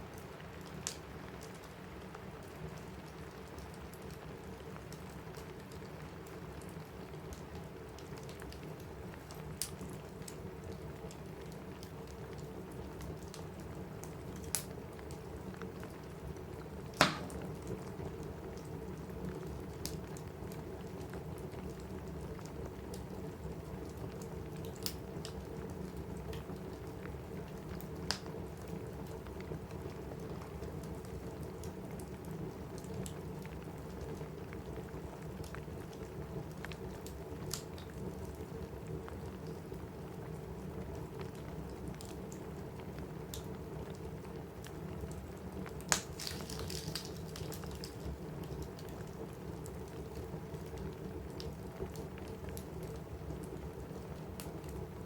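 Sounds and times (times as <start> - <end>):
rain on a roof: 0.0 - 55.0
wood fire crackling: 0.0 - 55.0
fire popping: 16.4 - 18.9, 44.6 - 54.8.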